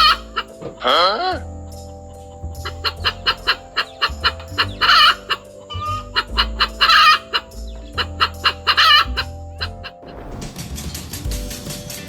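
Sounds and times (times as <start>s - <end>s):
hen cackling: 0.0s - 1.4s, 2.3s - 10.0s
hen clucking: 0.0s - 1.4s, 2.3s - 10.0s.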